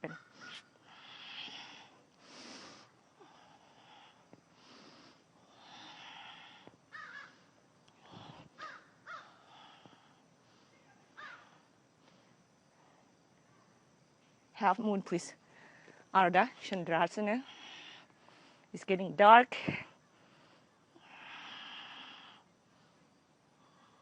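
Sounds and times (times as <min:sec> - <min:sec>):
slow deep breaths: 0:00.3 - 0:08.6, 0:09.2 - 0:10.8, 0:15.4 - 0:16.1, 0:17.4 - 0:18.8, 0:19.7 - 0:24.0.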